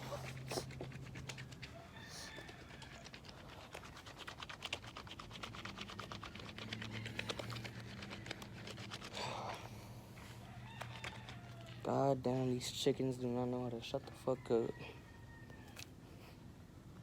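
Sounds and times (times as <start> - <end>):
soapy shoelace scrubbed between palms: 0.0 - 9.8.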